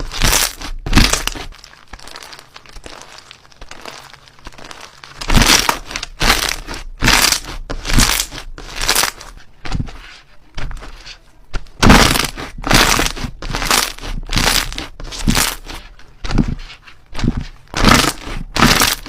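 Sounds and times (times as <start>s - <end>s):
slime squeezed crackling squishes: 0.0s - 9.3s, 11.8s - 16.5s, 17.2s - 19.0s.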